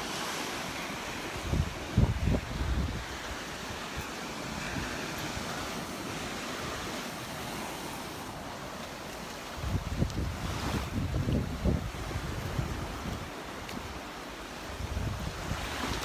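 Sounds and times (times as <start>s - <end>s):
surf washing onto beach: 0.0s - 16.0s
wind buffeting microphone: 1.0s - 7.0s, 9.5s - 16.0s.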